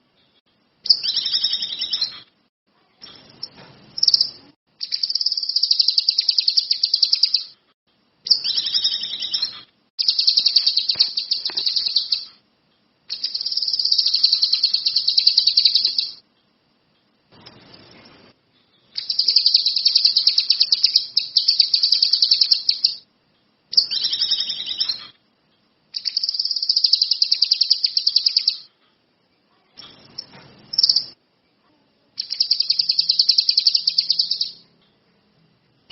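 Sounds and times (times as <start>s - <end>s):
songbird singing high trills: 0.9s - 2.2s, 4.0s - 7.6s, 8.3s - 12.4s, 13.1s - 16.2s, 19.0s - 23.0s, 23.7s - 25.1s, 26.0s - 28.7s, 32.2s - 34.6s.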